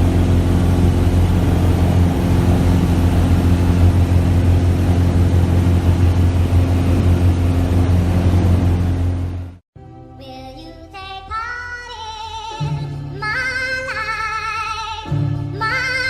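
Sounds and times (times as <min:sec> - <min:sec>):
aircraft engine and propeller drone: 0:00.0 - 0:09.6.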